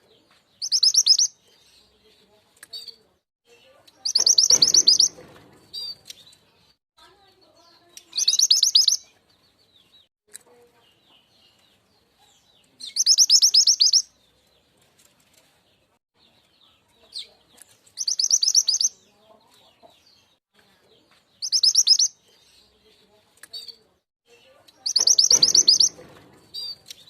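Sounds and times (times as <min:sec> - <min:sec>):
soft bird chirps: 0:00.0 - 0:27.0
high bird chattering notes: 0:04.0 - 0:05.2, 0:08.0 - 0:09.0, 0:18.0 - 0:19.0, 0:24.8 - 0:26.0.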